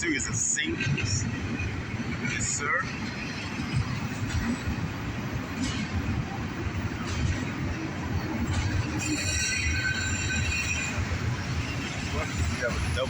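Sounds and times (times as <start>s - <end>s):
freight train rumbling past: 0.0s - 13.0s
train wheel clacks: 0.2s - 13.0s
high wheel squeal: 8.4s - 13.0s.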